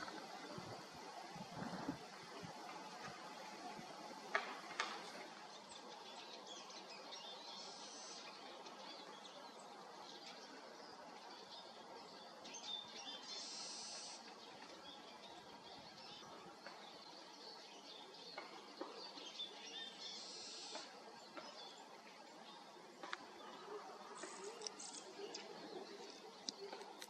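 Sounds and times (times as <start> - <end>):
small birds chirping: 5.1 - 27.0.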